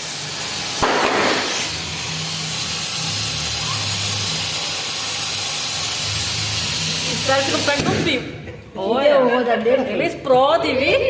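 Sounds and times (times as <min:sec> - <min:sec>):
firework hissing: 0:00.0 - 0:08.2
sharp pop: 0:00.8 - 0:01.7.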